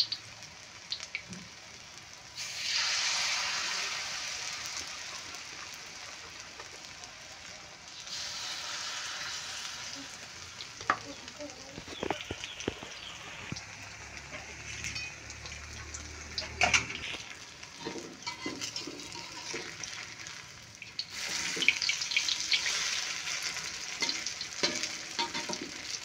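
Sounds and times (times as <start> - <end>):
frying in hot oil: 0.0 - 26.0
metal spatula scraping a pan: 11.9 - 15.6, 16.2 - 20.1, 21.2 - 25.8.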